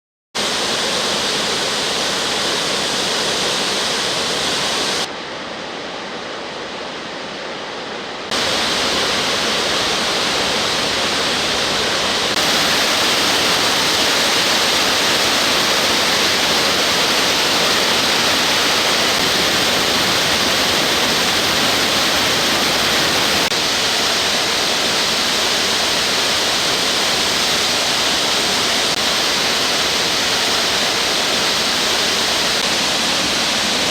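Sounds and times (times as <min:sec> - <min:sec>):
waterfall rushing: 0:00.4 - 0:05.1, 0:07.3 - 0:33.9.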